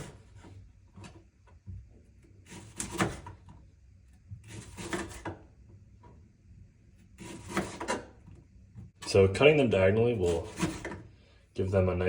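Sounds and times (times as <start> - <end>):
knife slicing on wooden board: 4.5 - 5.3, 7.2 - 8.1, 10.3 - 11.0.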